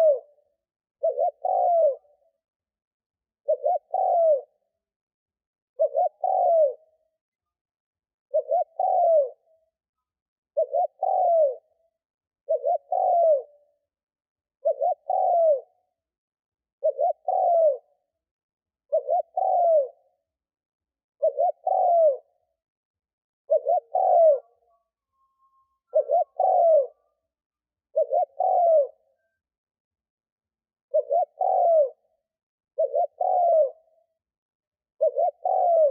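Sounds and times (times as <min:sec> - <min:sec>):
dove cooing: 0:00.0 - 0:00.4, 0:01.0 - 0:02.3, 0:03.4 - 0:04.7, 0:05.8 - 0:07.0, 0:08.3 - 0:09.5, 0:10.6 - 0:11.8, 0:12.4 - 0:13.6, 0:14.6 - 0:15.8, 0:16.8 - 0:18.0, 0:18.9 - 0:20.2, 0:21.2 - 0:22.4, 0:23.5 - 0:27.2, 0:27.9 - 0:29.4, 0:30.9 - 0:32.2, 0:32.8 - 0:34.0, 0:35.0 - 0:35.9.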